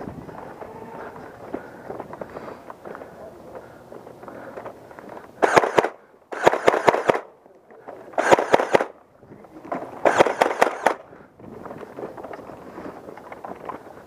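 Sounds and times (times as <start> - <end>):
toy blaster firing bursts: 5.4 - 7.3, 8.2 - 8.9, 10.0 - 11.0.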